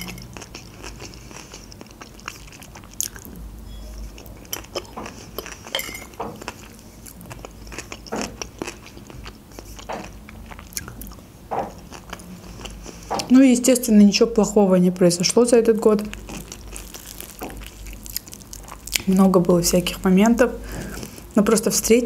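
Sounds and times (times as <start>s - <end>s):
salad being chewed: 0.0s - 3.3s, 4.1s - 13.1s, 16.1s - 19.0s.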